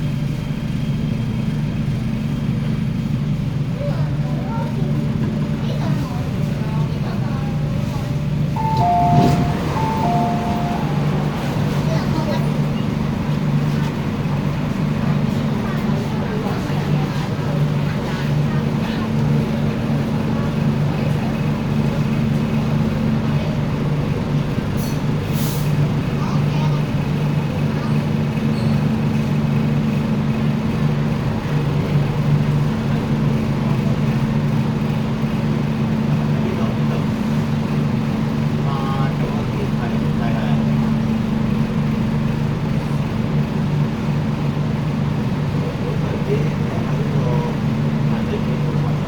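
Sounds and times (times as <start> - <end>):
train wheels rumbling on track: 0.0 - 49.0
low hum tones: 8.6 - 13.6.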